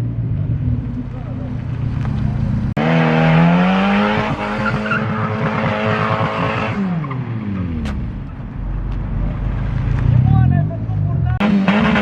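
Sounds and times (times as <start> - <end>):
car engine at high revs: 0.0 - 10.7, 11.3 - 12.0
tyre noise drifting: 0.0 - 12.0.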